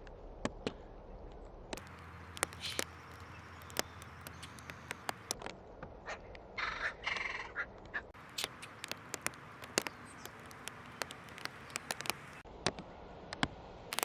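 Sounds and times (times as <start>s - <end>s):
harsh cawing bird calls: 1.8s - 5.4s, 6.6s - 12.4s
sharp clicks and ticks: 1.8s - 5.4s, 8.2s - 12.4s.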